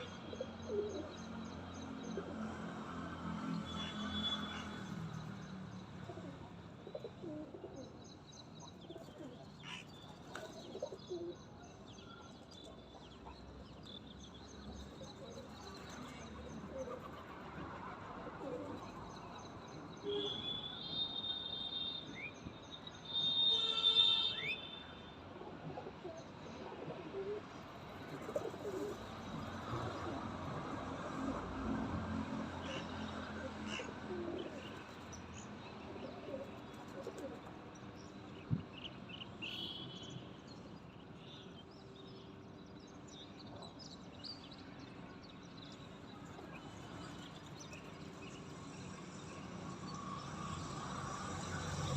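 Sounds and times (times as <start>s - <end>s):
birds calling and chirping: 0.0s - 2.4s, 3.8s - 17.5s, 26.0s - 29.8s, 32.6s - 40.2s.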